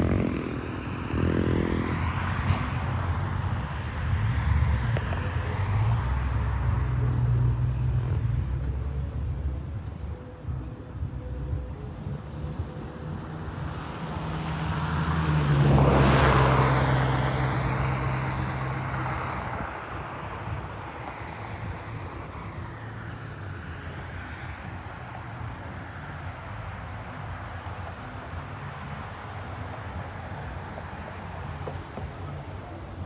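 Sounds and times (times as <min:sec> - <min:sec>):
car driving past: 0:00.0 - 0:09.1, 0:13.0 - 0:24.8.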